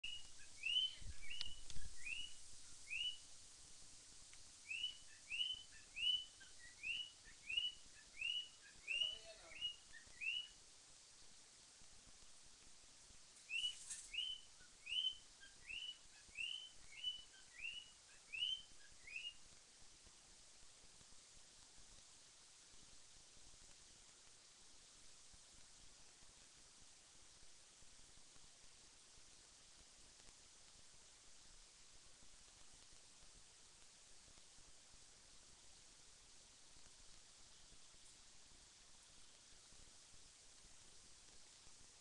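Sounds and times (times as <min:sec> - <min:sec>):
cockatiel chirping: 0:00.0 - 0:03.2, 0:04.6 - 0:10.6, 0:13.5 - 0:19.4.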